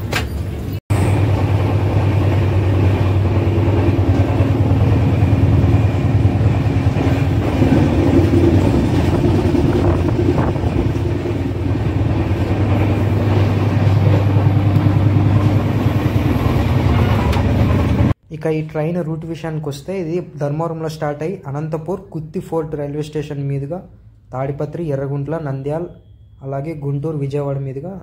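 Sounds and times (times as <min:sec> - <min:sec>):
locomotive humming: 0:00.0 - 0:18.2.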